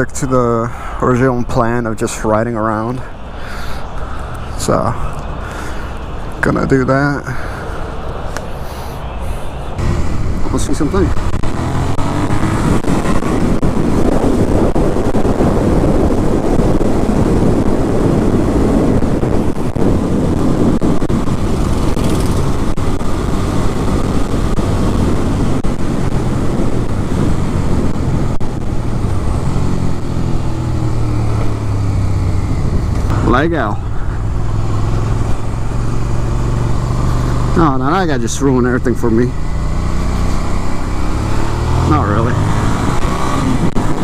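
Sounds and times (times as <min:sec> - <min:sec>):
wind noise: 0:00.0 - 0:44.0
motorcycle engine revving: 0:09.8 - 0:44.0.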